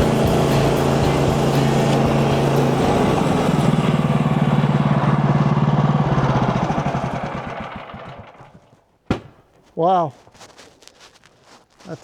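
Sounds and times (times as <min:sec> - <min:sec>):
gas engine idling and stopping: 0:00.0 - 0:08.9.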